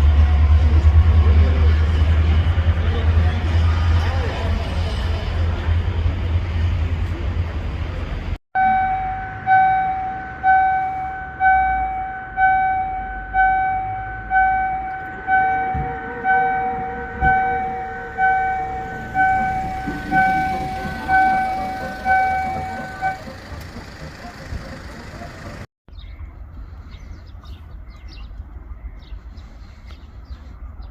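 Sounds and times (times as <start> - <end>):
low rumble: 0.0 - 25.6
level crossing warning bell: 8.6 - 25.7.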